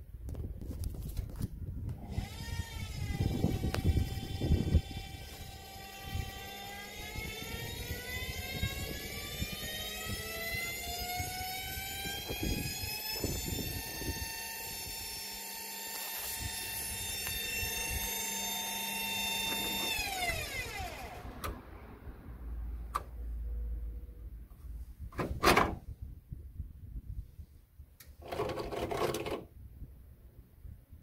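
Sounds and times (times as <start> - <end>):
washing machine motor whine: 2.0 - 21.9.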